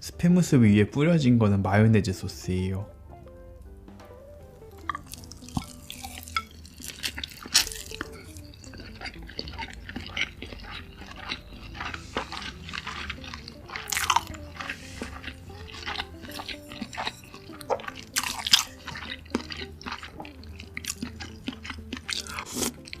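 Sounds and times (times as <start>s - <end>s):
soft background music: 0.0s - 23.0s
wet chewing with mouth clicks: 4.7s - 23.0s.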